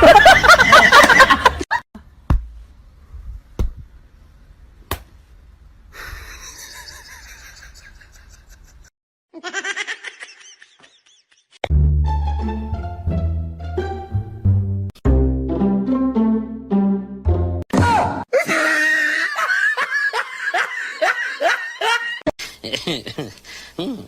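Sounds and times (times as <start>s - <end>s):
burst of laughter: 0.0s - 1.8s.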